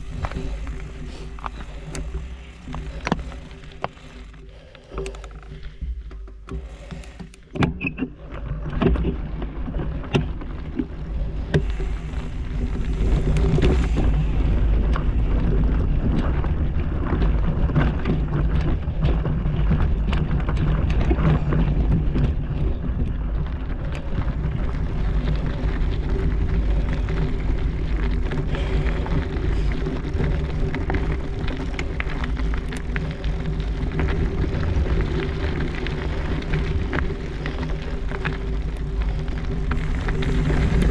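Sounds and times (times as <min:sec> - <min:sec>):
bike tyres rumbling: 0:00.0 - 0:40.9
wind buffeting microphone: 0:10.9 - 0:40.9.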